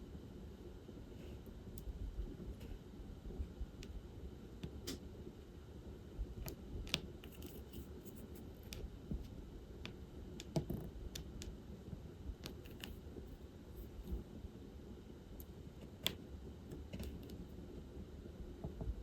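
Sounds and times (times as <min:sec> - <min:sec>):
drill pen clicks and taps: 0:09.8 - 0:11.5, 0:12.4 - 0:13.0.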